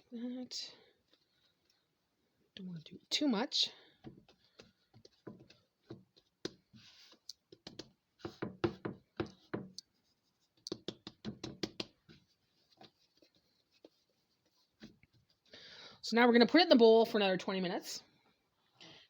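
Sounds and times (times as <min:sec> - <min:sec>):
dough kneaded by hand: 0:02.9 - 0:15.5.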